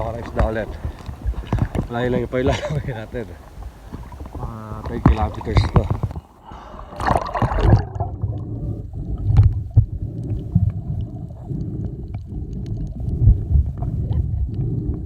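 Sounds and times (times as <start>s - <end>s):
paddle knocks and splashes: 0.0s - 8.3s
water and wind rumble: 0.0s - 15.0s.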